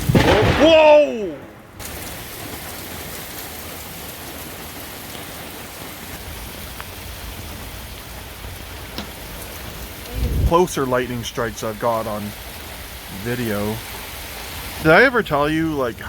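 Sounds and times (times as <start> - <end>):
sharp ticks of drops: 0.0 - 2.6
heavy rain pouring: 0.0 - 16.0.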